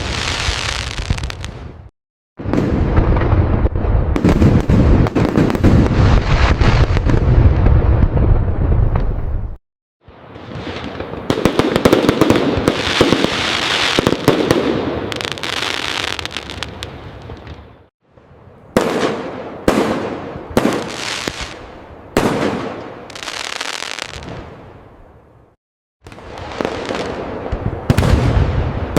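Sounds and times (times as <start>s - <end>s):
fireworks crackling bursts: 0.0s - 9.4s, 10.2s - 17.7s, 18.8s - 24.5s, 26.0s - 28.9s
fireworks bangs with echo: 2.4s - 9.4s, 10.3s - 16.8s, 18.7s - 24.6s, 26.1s - 28.9s.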